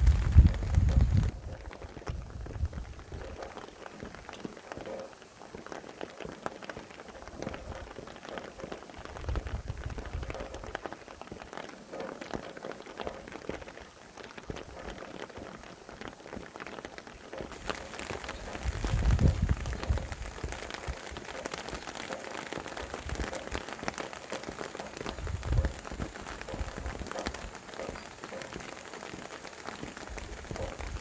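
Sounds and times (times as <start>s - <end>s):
low rumble of wind gusting: 0.0s - 3.4s, 9.0s - 10.7s, 17.6s - 21.1s, 25.1s - 27.0s
raindrops striking close by: 0.0s - 31.0s
steady rain: 0.0s - 31.0s.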